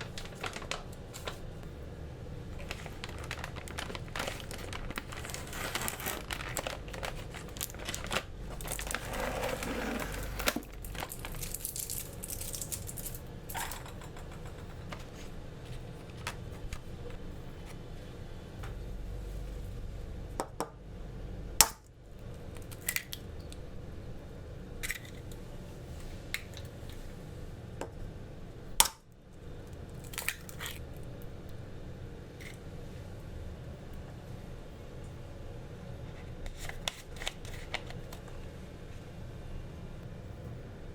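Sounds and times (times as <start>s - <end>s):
rustling and crinkling: 0.0s - 1.8s, 2.5s - 13.3s, 14.5s - 17.9s, 36.1s - 38.5s.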